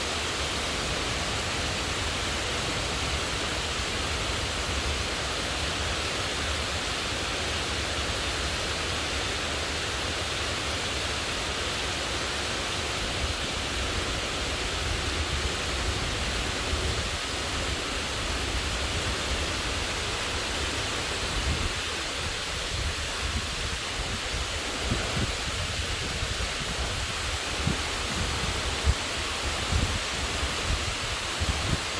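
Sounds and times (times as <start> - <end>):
heavy rain pouring: 0.0 - 31.9.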